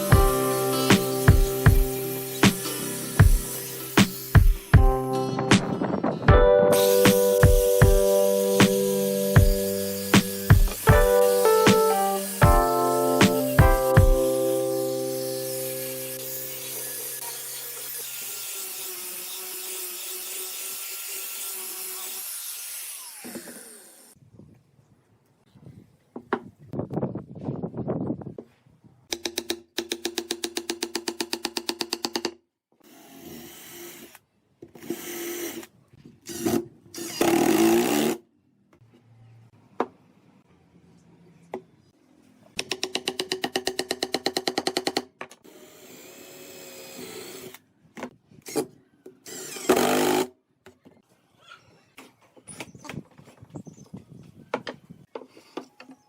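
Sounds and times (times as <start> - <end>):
power tool on wood: 0.0 - 4.8, 6.7 - 24.2.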